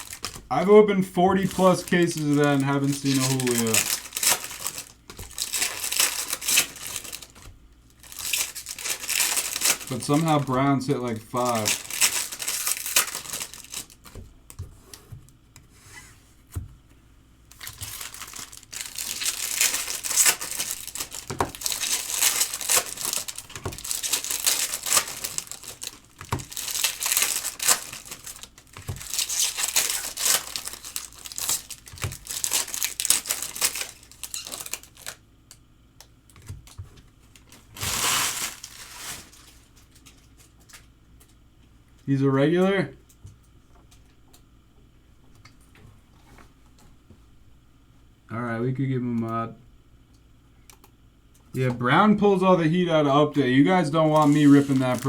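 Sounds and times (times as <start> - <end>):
wrappers tearing and crinkling: 0.0 - 0.6, 1.2 - 14.2, 17.5 - 35.2, 36.4 - 40.8, 54.0 - 55.0.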